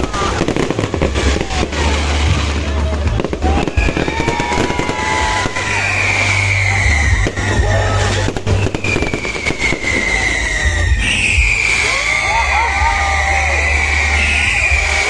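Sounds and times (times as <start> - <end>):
fireworks bangs and crackles: 0.0 - 15.0
firework whistle sliding downward: 3.5 - 15.0.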